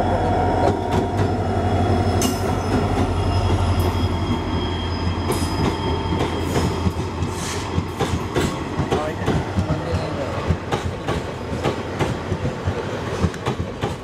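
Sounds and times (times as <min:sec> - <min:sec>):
diesel locomotive engine droning: 0:00.0 - 0:14.0
wheels squealing: 0:01.8 - 0:07.6
train wheels clicking over rail joints: 0:05.1 - 0:14.0.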